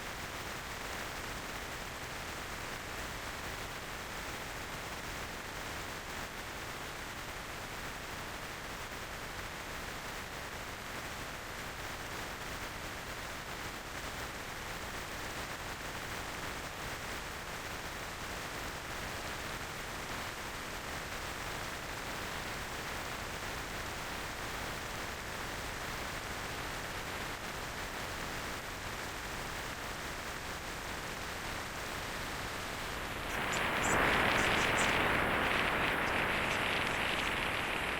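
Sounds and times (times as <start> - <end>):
wind and road noise: 31.3 - 37.9.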